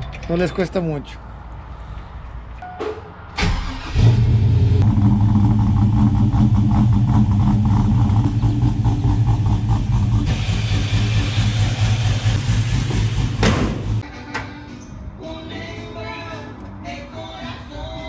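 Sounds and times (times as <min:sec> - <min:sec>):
truck engine cranking: 0:03.4 - 0:05.5, 0:09.2 - 0:14.9
truck engine running: 0:03.8 - 0:14.4.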